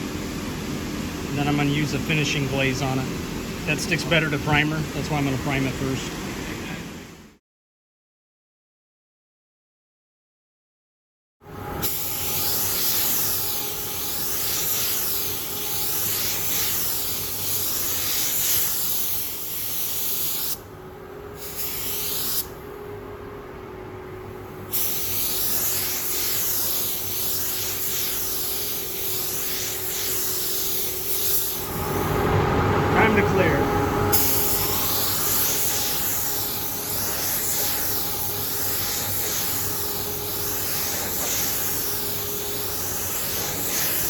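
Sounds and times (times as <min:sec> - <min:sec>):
spray gun hissing: 0:11.8 - 0:20.6, 0:21.4 - 0:22.6, 0:24.7 - 0:32.2, 0:34.1 - 0:44.0.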